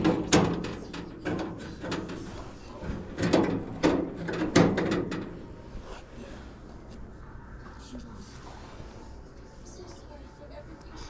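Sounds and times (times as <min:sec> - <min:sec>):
objects knocking and clattering: 0:00.0 - 0:05.6.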